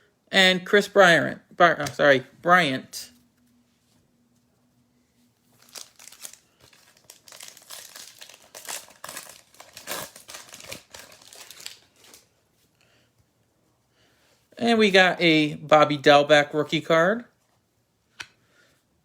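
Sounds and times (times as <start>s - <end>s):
plastic wrapper tearing and crinkling: 5.5s - 12.3s.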